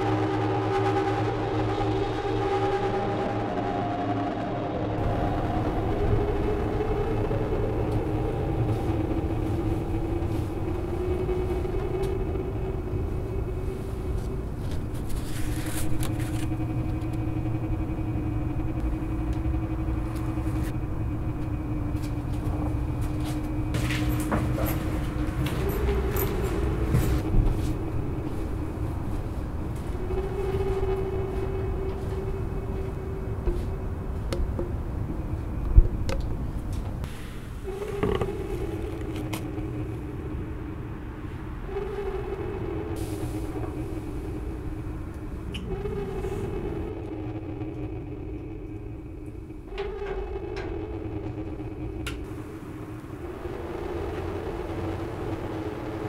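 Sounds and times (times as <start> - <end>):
hum shifting between pitches: 0.0 - 56.0
low rumble: 0.0 - 56.0.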